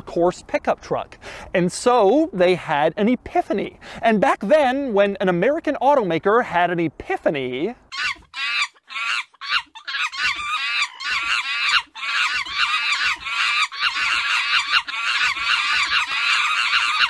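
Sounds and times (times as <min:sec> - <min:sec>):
repeated bird calls: 0:07.9 - 0:17.0.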